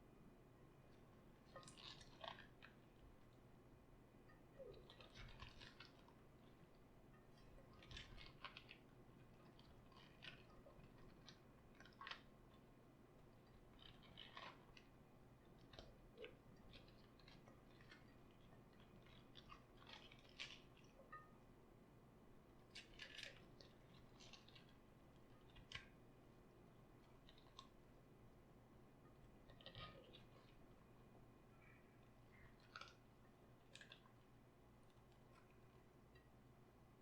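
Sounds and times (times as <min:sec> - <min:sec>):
raw cabbage crunching: 0:01.4 - 0:03.0, 0:04.6 - 0:06.7, 0:07.3 - 0:21.3, 0:22.7 - 0:26.0, 0:29.3 - 0:30.6, 0:32.3 - 0:36.3.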